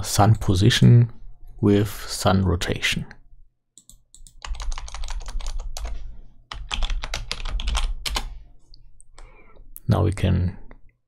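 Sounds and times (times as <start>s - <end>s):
typing on a keyboard: 3.8s - 8.3s.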